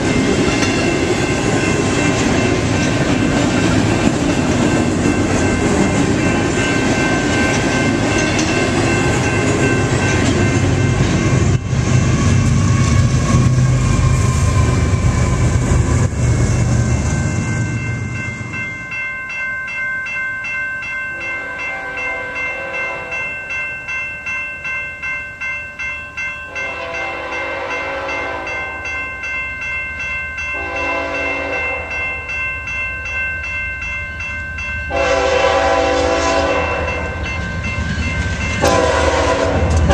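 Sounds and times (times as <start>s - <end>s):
train wheels clattering on rails: 0.0s - 18.7s, 34.9s - 39.9s
crossing bells ringing: 0.0s - 39.9s
locomotive horn blasts: 21.4s - 23.1s, 26.6s - 28.6s, 30.6s - 32.0s, 34.9s - 37.2s, 38.6s - 39.9s.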